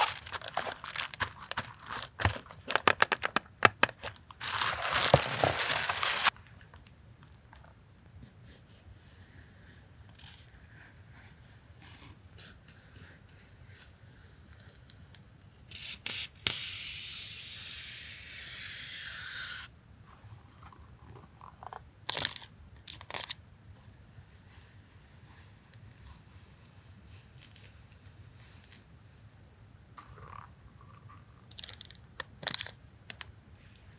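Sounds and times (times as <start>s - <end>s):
packaging tearing: 0.0s - 6.3s
packaging crinkling: 0.0s - 6.4s.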